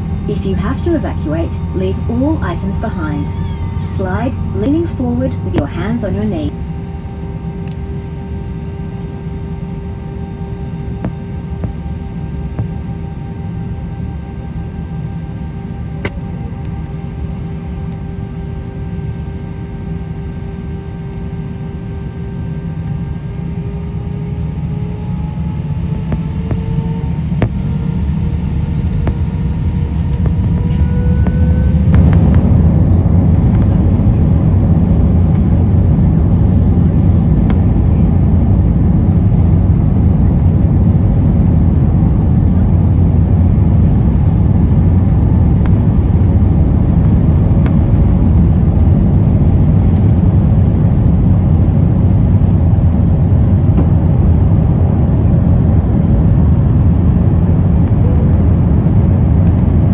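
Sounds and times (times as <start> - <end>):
jet engines spooling up: 0.0 - 6.5, 24.1 - 54.7.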